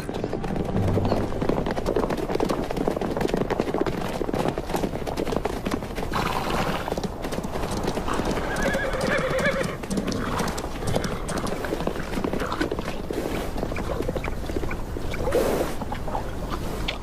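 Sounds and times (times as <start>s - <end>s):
horse hooves clattering on hard ground: 0.0s - 17.0s
horse whinnying: 8.0s - 11.2s.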